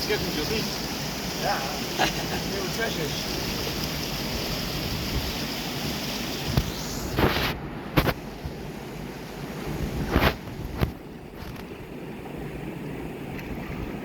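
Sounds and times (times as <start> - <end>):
stream water rushing: 0.0 - 14.0
wind on microphone: 3.3 - 14.0.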